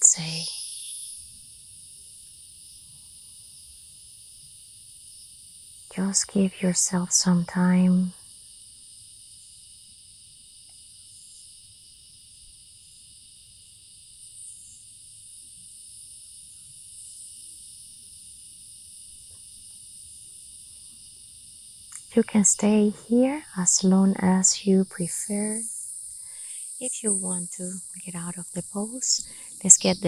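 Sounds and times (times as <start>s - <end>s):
insects chirring: 0.0s - 30.0s.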